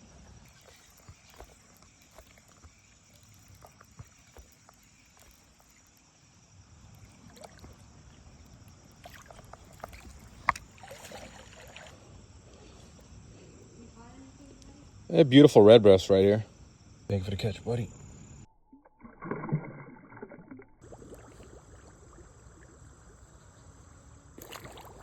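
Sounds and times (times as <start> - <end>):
fish splashing in water: 0.0 - 12.2, 19.0 - 23.4, 24.4 - 25.0
faint insect drone: 0.0 - 18.9, 20.3 - 25.0
fishing tackle clicks and knocks: 9.3 - 10.7.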